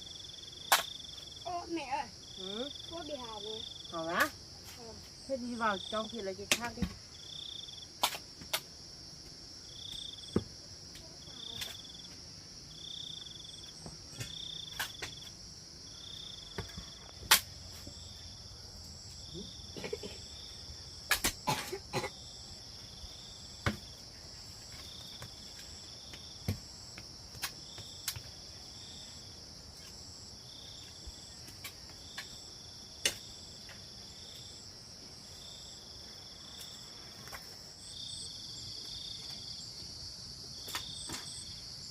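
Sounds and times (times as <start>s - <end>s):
insect chirp: 0.0s - 41.9s
insects droning: 0.0s - 41.9s.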